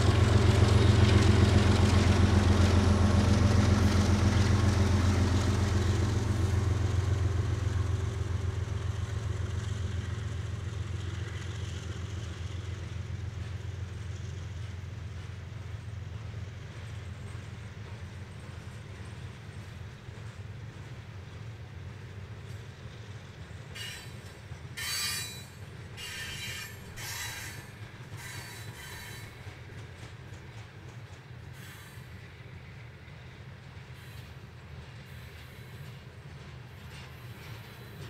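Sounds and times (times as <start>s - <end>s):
freight train rumbling past: 0.0s - 38.0s
high-pitched wheel squeals: 23.8s - 24.2s, 24.8s - 29.4s.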